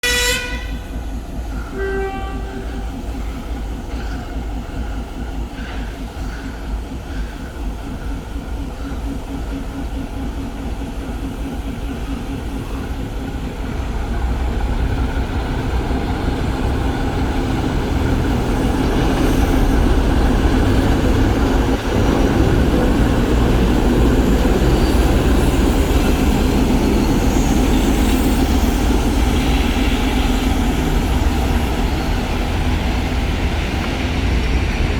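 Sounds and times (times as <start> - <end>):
locomotive horn blast: 0.0 - 0.8, 1.7 - 3.0
diesel engine throbbing drone: 12.3 - 34.9.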